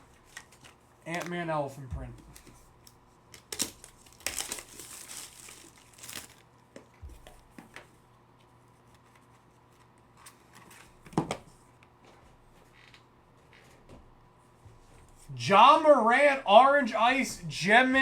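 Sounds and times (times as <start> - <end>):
plastic packaging crinkling and tearing: 0.1 - 1.4, 2.3 - 6.5.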